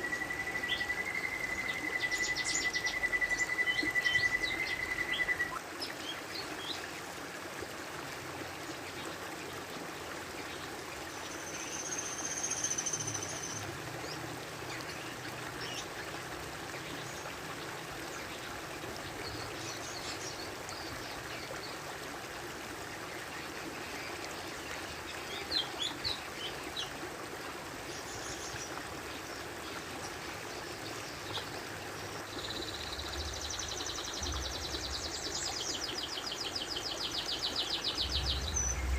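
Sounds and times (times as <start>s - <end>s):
water trickling: 0.0s - 38.9s.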